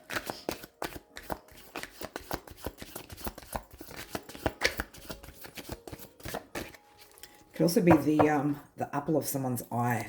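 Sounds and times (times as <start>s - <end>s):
cards being shuffled: 0.0s - 7.2s.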